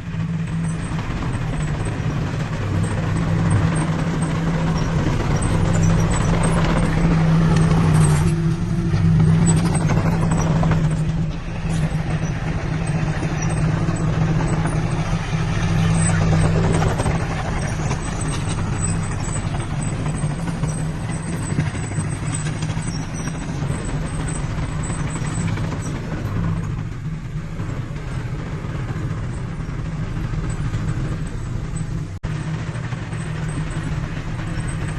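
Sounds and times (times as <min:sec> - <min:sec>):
diesel engine droning: 0:00.0 - 0:34.9.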